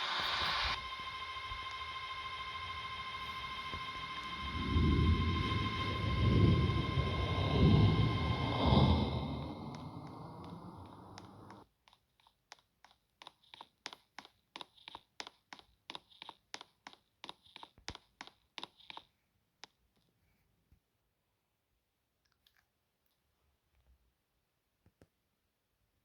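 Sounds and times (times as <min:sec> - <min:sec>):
low rumbling noise: 0:00.0 - 0:11.6.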